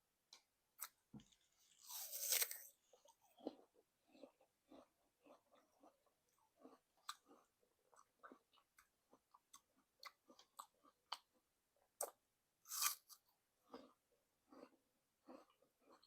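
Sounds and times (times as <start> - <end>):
apple chewing crunches: 1.7 - 6.0, 12.0 - 14.0.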